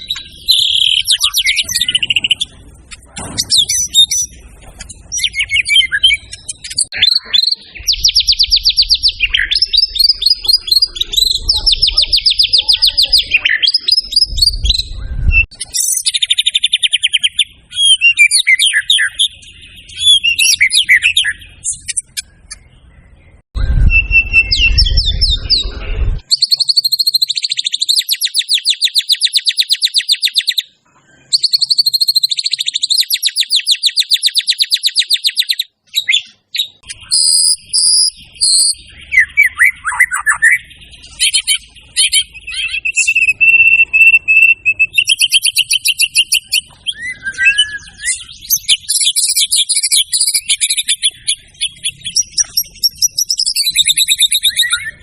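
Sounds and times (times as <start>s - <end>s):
songbird singing trills and whistles: 0.0s - 55.0s
low rumble: 14.0s - 15.5s.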